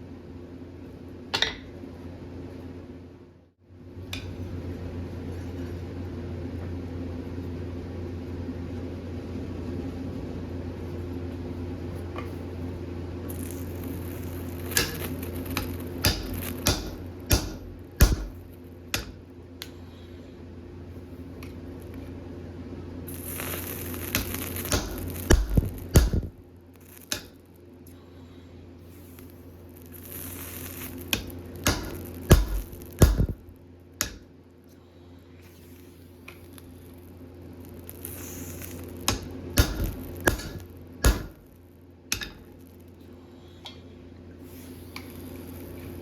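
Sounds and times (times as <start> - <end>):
steady low hum: 0.0 - 46.0
hammer striking steel on anvil: 1.3 - 1.7, 15.6 - 19.2, 24.1 - 26.3, 27.1 - 27.4, 31.1 - 33.4, 34.0 - 34.2, 39.1 - 41.4, 42.1 - 42.4.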